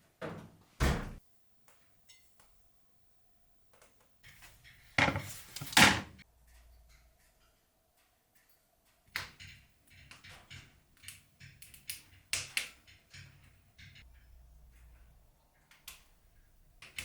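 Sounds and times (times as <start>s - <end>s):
sharp clicks and light knocks: 3.7s - 16.2s.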